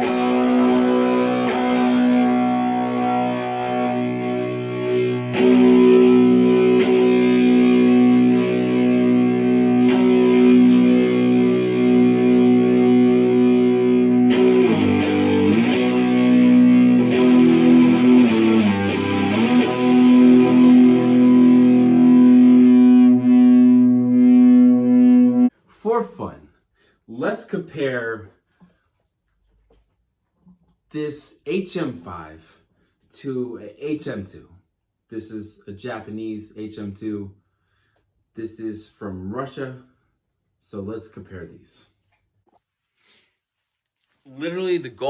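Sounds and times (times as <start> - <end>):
distorted electric guitar chords: 0.0 - 25.5.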